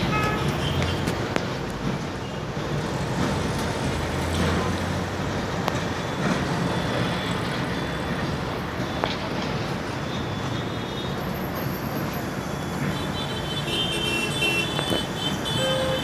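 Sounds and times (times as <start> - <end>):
diesel locomotive engine rumble: 0.0 - 16.0
moving train noise: 0.0 - 16.0.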